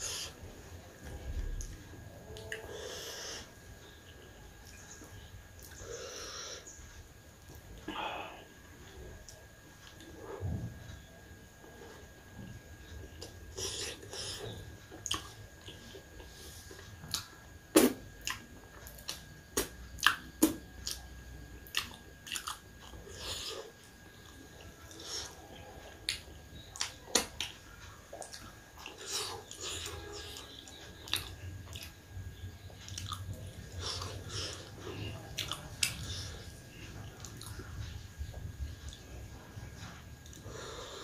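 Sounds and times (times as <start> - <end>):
person chewing and biting: 21.6 - 24.1, 32.9 - 36.2.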